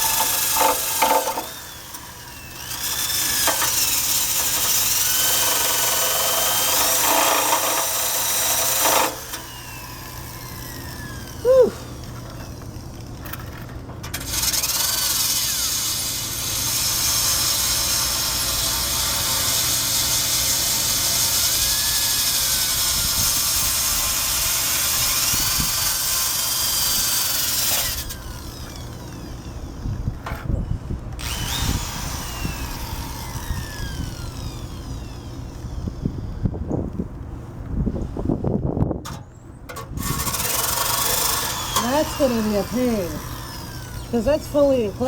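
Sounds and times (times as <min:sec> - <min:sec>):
wire brush scraping metal: 0:00.0 - 0:02.0, 0:02.6 - 0:09.5, 0:39.1 - 0:45.0.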